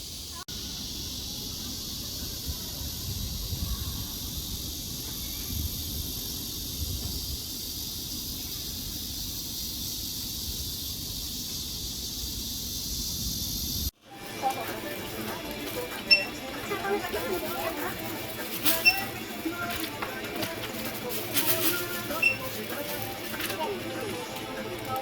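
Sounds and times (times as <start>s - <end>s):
cicadas buzzing: 0.0s - 25.0s.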